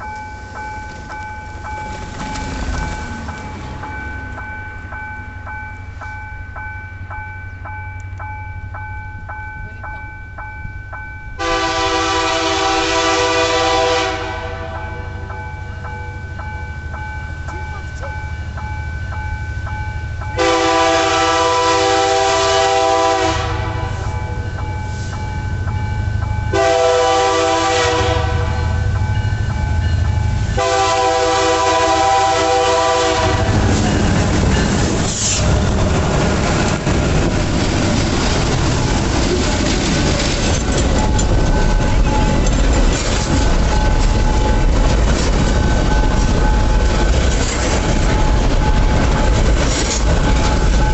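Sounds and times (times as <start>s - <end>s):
train wheels rumbling on rail: 0.0s - 50.9s
locomotive air horn blasts: 11.4s - 15.1s, 20.4s - 24.2s, 26.5s - 28.9s, 30.6s - 33.8s.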